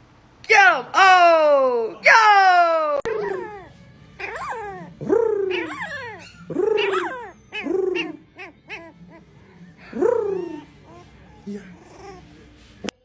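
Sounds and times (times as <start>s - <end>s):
dog yelping whines: 3.0s - 12.2s.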